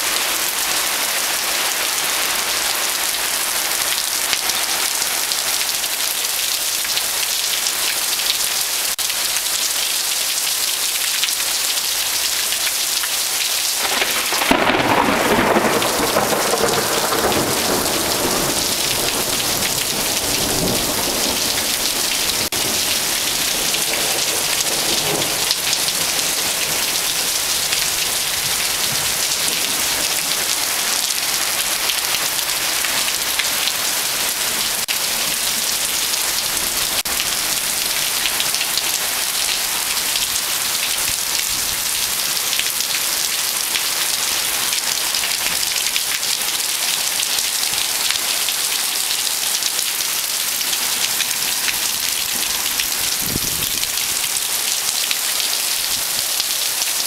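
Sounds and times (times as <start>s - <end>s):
heavy rain pouring: 0.0s - 57.0s
rain splashing on surfaces: 0.0s - 57.0s
thunder rumble: 13.8s - 27.0s.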